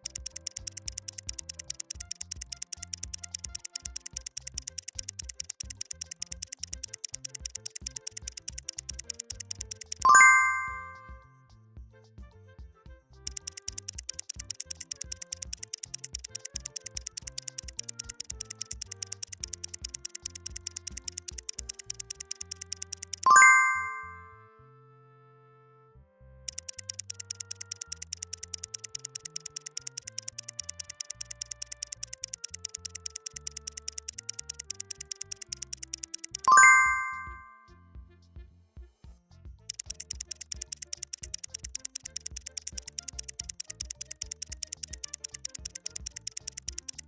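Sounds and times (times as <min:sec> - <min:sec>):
rapid clock-like ticking: 0:00.0 - 0:11.0, 0:13.2 - 0:23.5, 0:26.5 - 0:37.4, 0:39.6 - 0:47.0
simple background music: 0:00.0 - 0:11.2, 0:13.3 - 0:24.3, 0:26.5 - 0:37.6
bright bell chime: 0:10.1 - 0:11.2, 0:23.3 - 0:24.3, 0:36.5 - 0:37.6.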